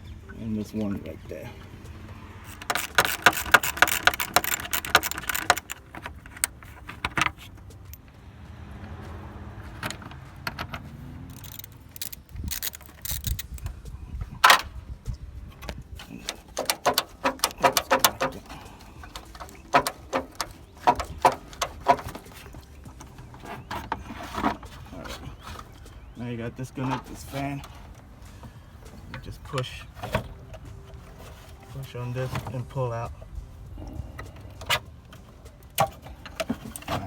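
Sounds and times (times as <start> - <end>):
socket ratchet clicking: 2.4 - 7.2, 10.6 - 13.7, 16.2 - 22.6.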